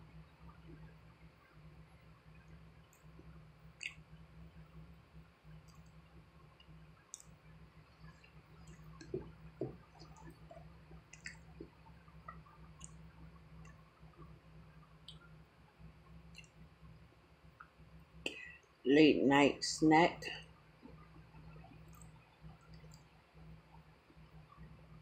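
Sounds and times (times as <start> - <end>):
low steady hum: 0.0 - 25.0
small clicks and taps: 6.6 - 7.4, 8.0 - 13.0.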